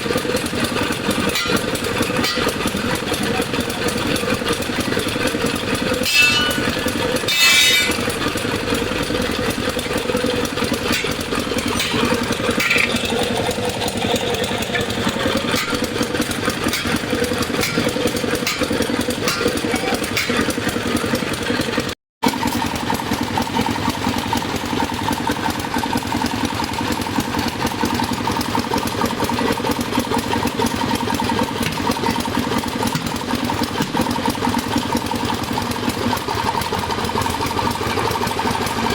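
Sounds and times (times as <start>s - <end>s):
motor running: 0.0s - 21.7s, 22.3s - 38.9s
sharp metallic clanks: 0.4s - 20.8s.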